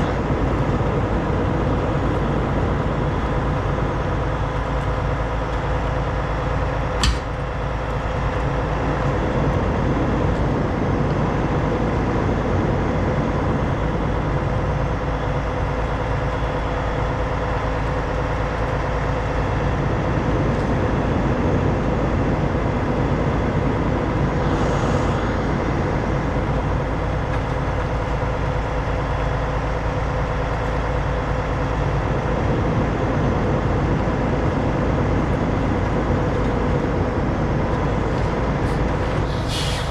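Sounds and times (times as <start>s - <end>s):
diesel engine running: 0.0s - 39.9s
sharp click: 7.0s - 7.4s
brief hiss: 39.2s - 39.9s.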